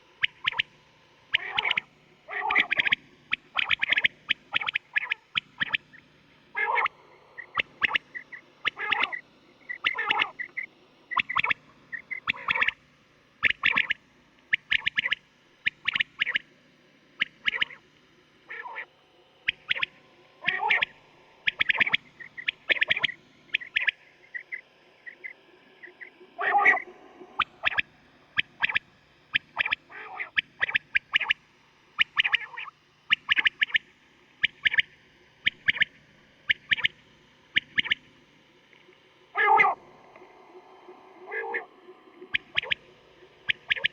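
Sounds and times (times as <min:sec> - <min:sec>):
quail calling: 0:01.3 - 0:05.9, 0:06.6 - 0:12.8, 0:13.4 - 0:14.0, 0:17.2 - 0:17.8, 0:18.5 - 0:18.9, 0:19.5 - 0:25.2, 0:25.8 - 0:27.8, 0:29.4 - 0:31.4, 0:34.4 - 0:35.9, 0:36.5 - 0:37.0, 0:39.4 - 0:39.9, 0:41.3 - 0:41.7, 0:42.3 - 0:43.9
quail calling sharp clipped notes: 0:39.4 - 0:39.8, 0:43.5 - 0:43.9.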